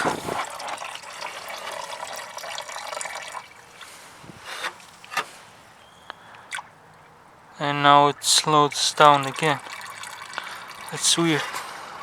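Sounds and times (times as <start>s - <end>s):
coolant pouring into pan: 0.0s - 5.2s, 8.2s - 11.3s.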